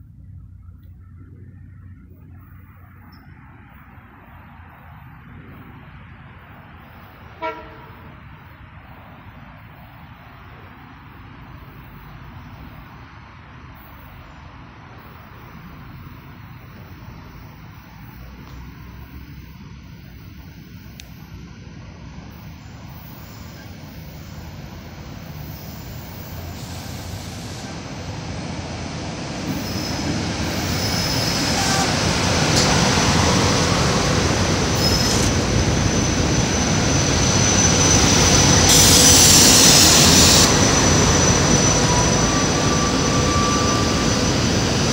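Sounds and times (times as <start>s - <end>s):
train wheels rumbling: 15.6s - 44.9s
high brake squeal: 22.4s - 27.7s, 29.5s - 44.9s
loud high-pitched burst: 29.5s - 44.9s.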